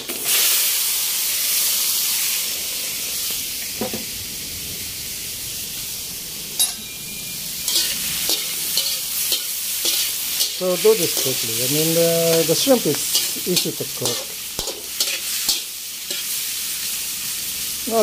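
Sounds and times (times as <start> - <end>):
shrimp sizzling in a wok: 0.0 - 18.0
spatula scraping a wok: 7.5 - 16.9.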